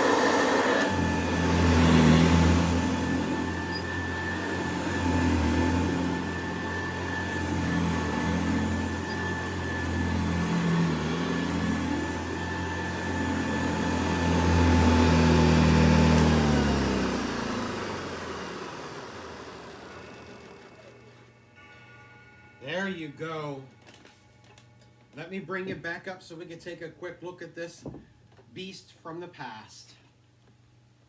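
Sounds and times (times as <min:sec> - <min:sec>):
upright vacuum cleaner running: 0:00.0 - 0:21.4.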